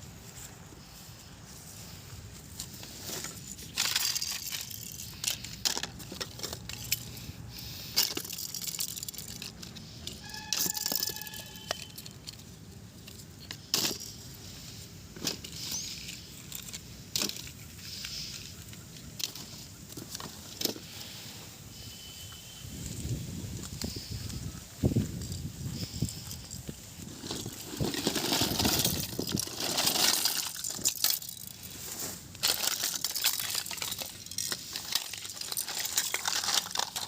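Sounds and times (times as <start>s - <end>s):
toys clicking and rattling: 2.9s - 14.4s, 15.1s - 21.1s, 25.0s - 31.7s, 32.3s - 37.0s.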